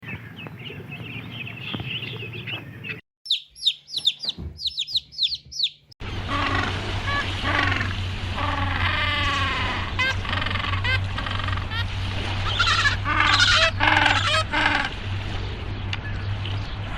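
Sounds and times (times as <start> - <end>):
birds twittering: 0.0 - 16.9
sharp falling bird chirps: 1.7 - 5.8
low hum: 6.0 - 16.9
animal calls: 6.3 - 14.9.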